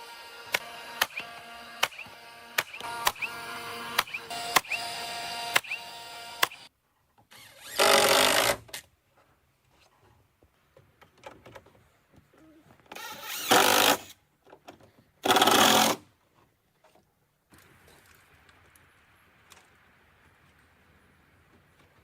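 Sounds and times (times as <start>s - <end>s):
power tool bursts: 13.0s - 14.1s.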